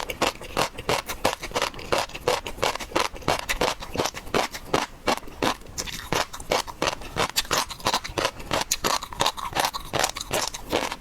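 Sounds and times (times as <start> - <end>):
crunching shellfish while eating: 0.0 - 11.0.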